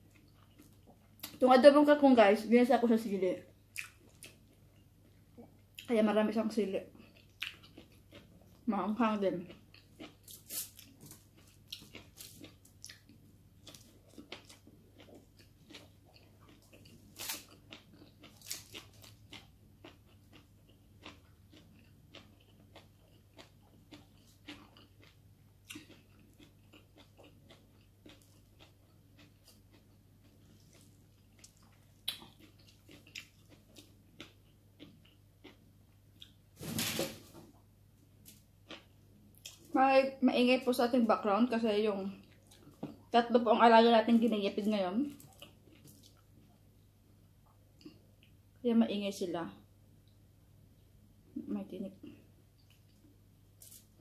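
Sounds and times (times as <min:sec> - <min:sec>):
chewing and lip smacks: 0:00.0 - 0:01.4, 0:03.7 - 0:05.9, 0:06.9 - 0:08.6, 0:09.4 - 0:36.4, 0:45.1 - 0:46.6
food crunches: 0:09.5 - 0:36.4, 0:52.6 - 0:54.0.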